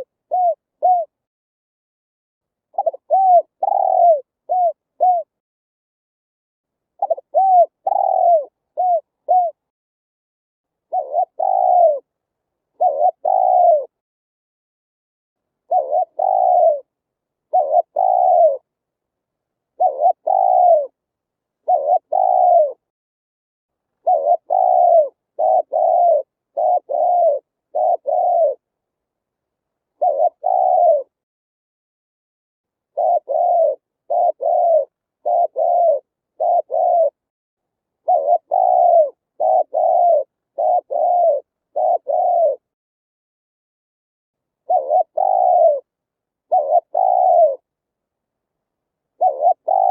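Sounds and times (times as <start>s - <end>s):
dove cooing: 0.0s - 1.2s, 2.7s - 5.4s, 7.0s - 9.6s, 10.9s - 12.1s, 12.8s - 14.0s, 15.7s - 16.9s, 17.5s - 18.7s, 19.7s - 21.0s, 21.6s - 22.9s, 24.0s - 28.7s, 30.0s - 31.2s, 32.9s - 37.2s, 38.0s - 42.7s, 44.6s - 47.7s, 49.2s - 49.9s.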